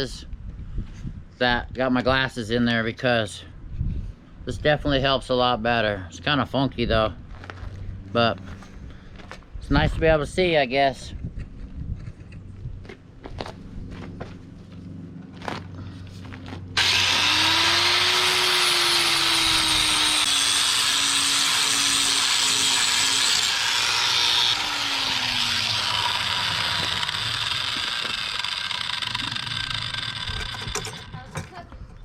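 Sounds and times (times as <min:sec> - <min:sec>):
angle grinder grinding steel: 0:16.8 - 0:31.5.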